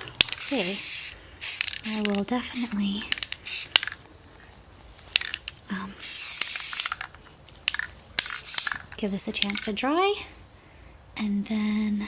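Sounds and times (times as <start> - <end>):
spray can clicks: 0.2 - 4.0, 5.2 - 9.7
spray paint can hissing: 0.2 - 4.0, 6.0 - 7.1, 7.7 - 8.9.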